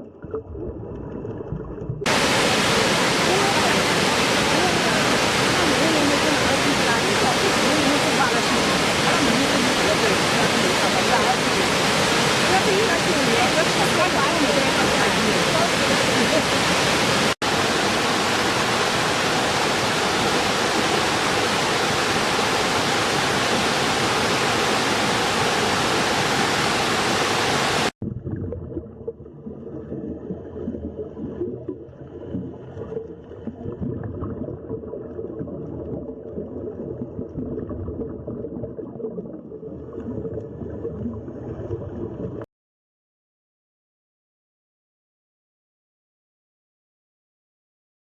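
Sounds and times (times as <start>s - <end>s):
moving water: 0.0s - 42.4s
waterfall rushing: 2.1s - 27.9s.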